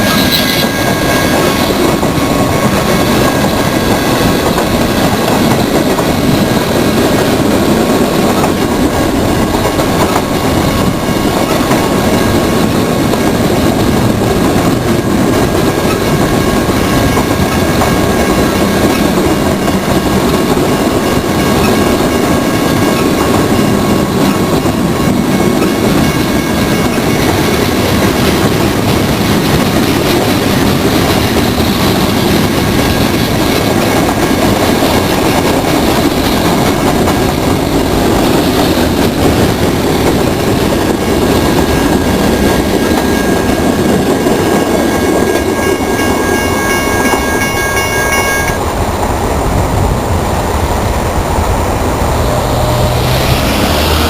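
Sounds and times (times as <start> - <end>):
train wheels rumbling on rail: 0.0 - 54.0
high-pitched tone: 45.0 - 48.6.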